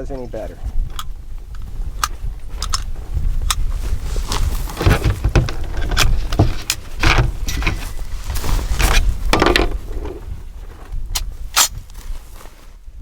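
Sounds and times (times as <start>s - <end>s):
rifle handling clicks and rattles: 0.9s - 3.7s, 4.8s - 7.9s.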